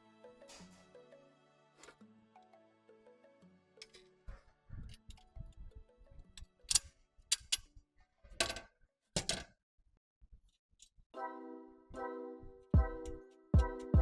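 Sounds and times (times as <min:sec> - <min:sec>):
faint background music: 0:00.0 - 0:08.6, 0:11.2 - 0:14.0
metal parts knocking and clicking: 0:06.4 - 0:07.7, 0:08.4 - 0:09.5.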